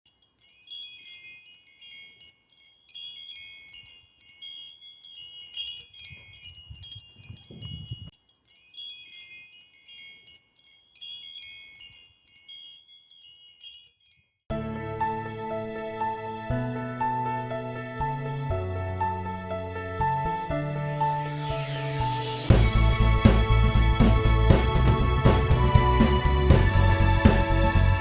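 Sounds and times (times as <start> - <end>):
wind chimes tinkling: 0.0 - 14.5.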